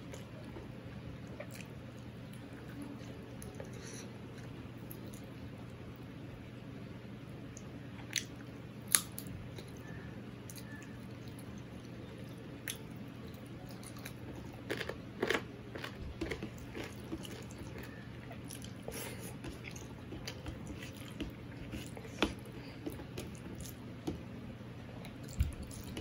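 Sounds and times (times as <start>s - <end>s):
person chewing food: 1.3s - 2.7s, 10.5s - 24.2s, 24.9s - 26.0s.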